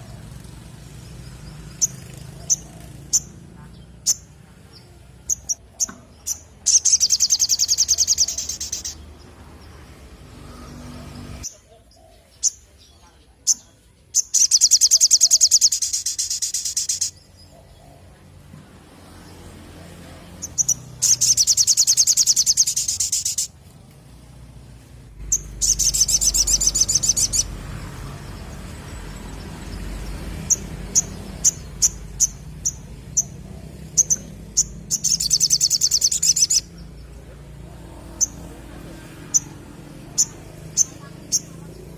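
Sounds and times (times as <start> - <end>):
bird sharp chirps: 1.4 - 9.1, 10.6 - 17.8, 20.4 - 23.5, 25.3 - 27.6, 29.1 - 37.2
bird trilling: 5.2 - 9.0, 13.5 - 17.3, 20.4 - 23.5, 25.3 - 27.6, 29.7 - 37.0, 39.2 - 41.8.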